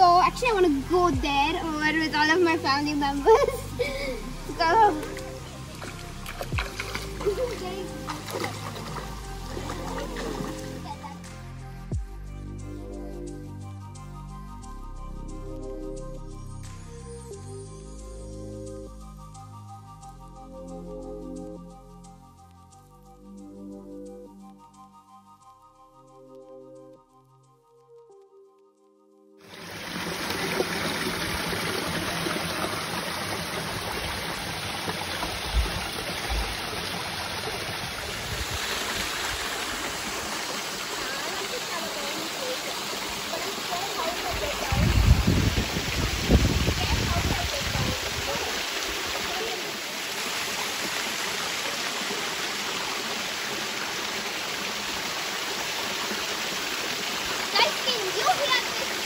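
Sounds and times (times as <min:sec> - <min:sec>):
running water rushing: 0:00.0 - 0:11.6, 0:29.4 - 0:59.0.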